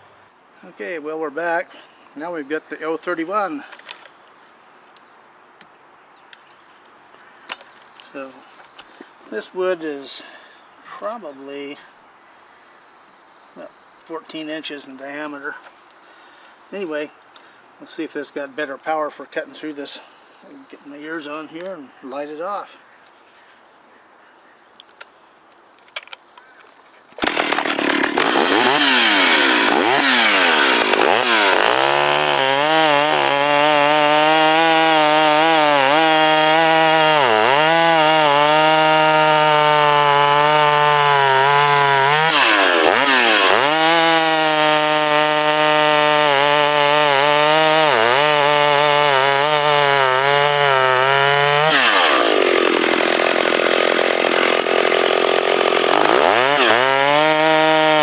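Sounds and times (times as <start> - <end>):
chainsaw cutting through log: 27.2 - 58.0.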